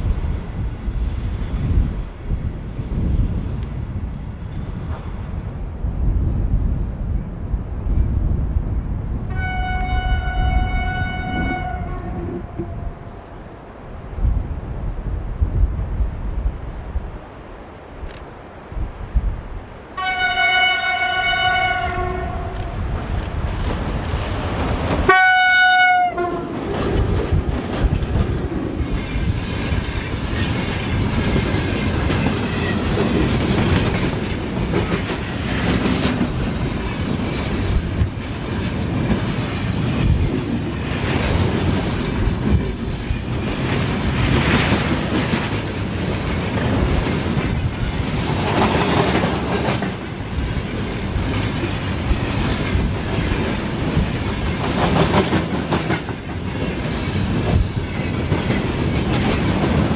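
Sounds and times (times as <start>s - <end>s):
train wheels rumbling and clattering: 0.0s - 16.6s, 20.3s - 59.9s
train horn: 9.3s - 13.3s, 20.0s - 22.9s, 25.1s - 26.8s.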